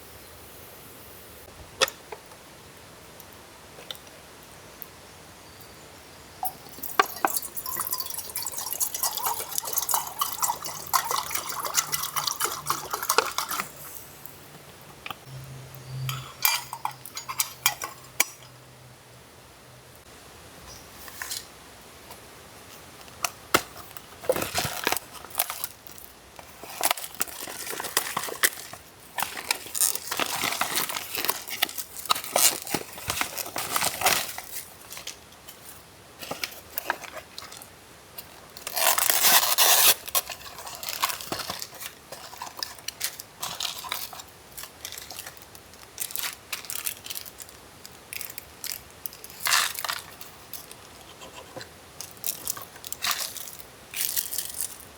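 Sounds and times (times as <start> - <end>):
plastic wrapping crinkling: 23.7 - 35.6, 38.6 - 51.4, 52.0 - 54.9.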